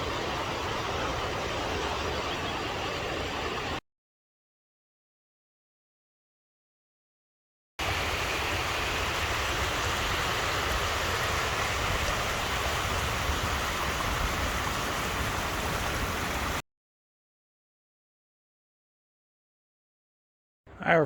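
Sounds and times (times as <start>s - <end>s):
running water: 7.8s - 16.6s.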